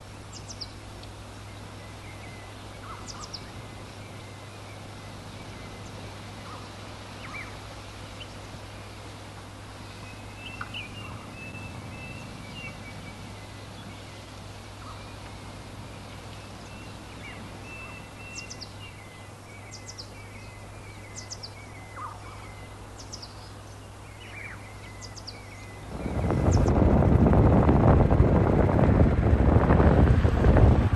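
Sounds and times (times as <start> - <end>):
small birds chirping: 0.0 - 26.9
steady low hum: 0.0 - 30.9
loud rushing noise: 25.9 - 30.9.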